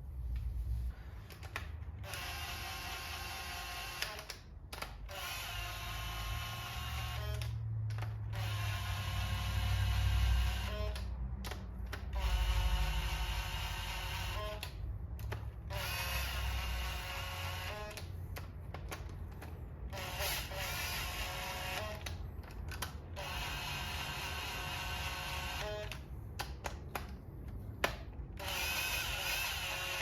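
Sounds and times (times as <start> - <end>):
electric power drill running: 2.0 - 4.3, 5.1 - 7.6, 8.4 - 11.0, 12.2 - 14.7, 15.7 - 18.0, 19.9 - 22.1, 23.2 - 26.0, 28.4 - 30.0.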